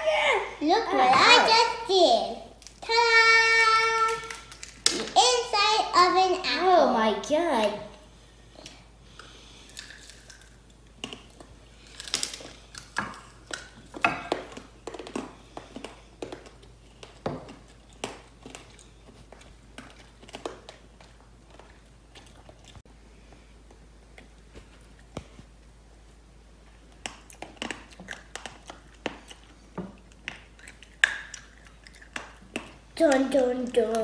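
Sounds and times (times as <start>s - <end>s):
candy apple shell crunching: 2.6s - 5.2s, 9.2s - 14.0s.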